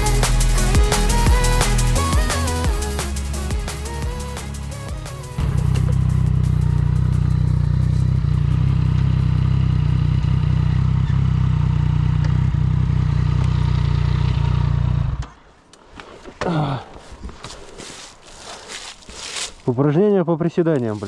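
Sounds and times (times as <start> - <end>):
motorcycle engine idling: 2.2 - 15.2
scuffs: 15.8 - 19.8.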